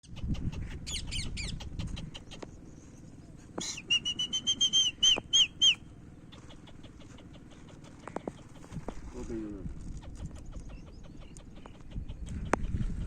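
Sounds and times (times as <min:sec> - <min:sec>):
parrot chirping and whistling: 0:03.6 - 0:05.8.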